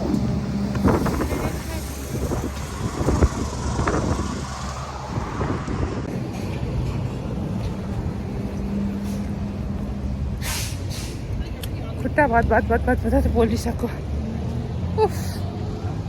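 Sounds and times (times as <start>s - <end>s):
wind buffeting microphone: 0.0s - 10.4s
engine hum: 0.0s - 16.0s
traffic rumble: 0.0s - 16.0s.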